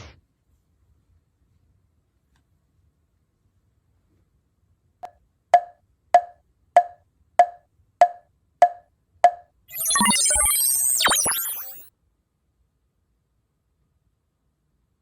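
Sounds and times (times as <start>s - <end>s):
gliding warbling tones: 9.7s - 11.8s.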